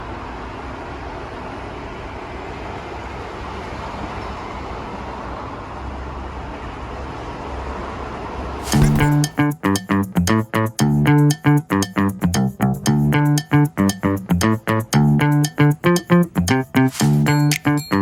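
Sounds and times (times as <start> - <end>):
subway train rumbling hiss: 0.0 - 8.6
music with bass and guitar: 8.7 - 18.0.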